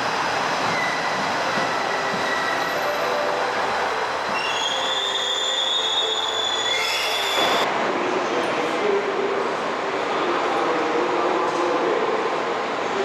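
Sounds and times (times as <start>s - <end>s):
train rumble: 0.0s - 4.9s
train wheels squealing: 0.7s - 3.4s, 4.2s - 7.6s.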